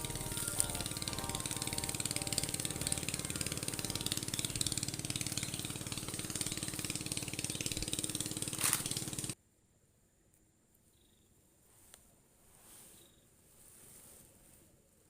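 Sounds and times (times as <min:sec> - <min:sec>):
small engine running: 0:00.0 - 0:09.4.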